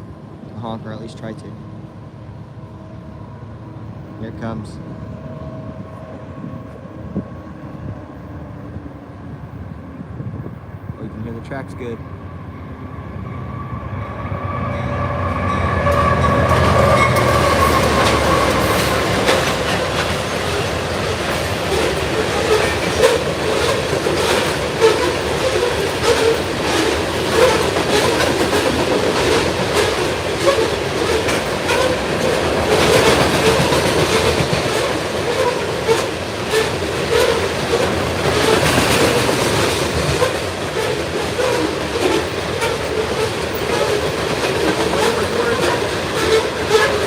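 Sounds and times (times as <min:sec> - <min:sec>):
rolling rail noise: 0:00.0 - 0:47.0
train wheels clicking over rail joints: 0:15.9 - 0:47.0.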